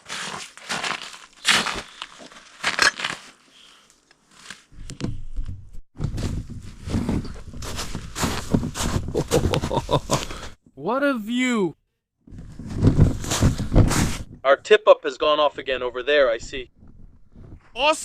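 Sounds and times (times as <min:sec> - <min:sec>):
crunching and rustling: 0:00.0 - 0:04.7, 0:06.0 - 0:10.4, 0:12.4 - 0:14.3.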